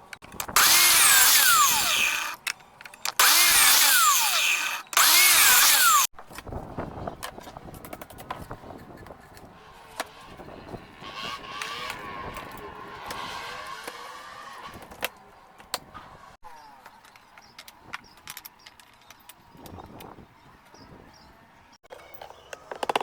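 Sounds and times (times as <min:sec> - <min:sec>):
power drill running: 0:00.6 - 0:02.4, 0:03.2 - 0:06.1.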